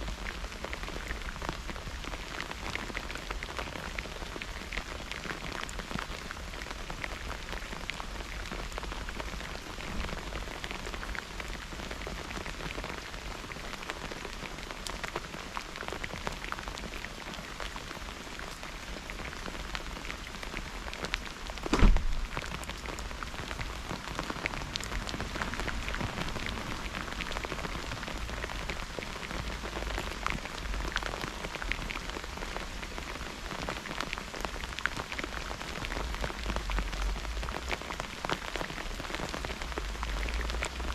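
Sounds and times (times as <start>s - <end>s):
heavy rain pattering: 0.0s - 40.9s
loud thump: 21.6s - 22.4s.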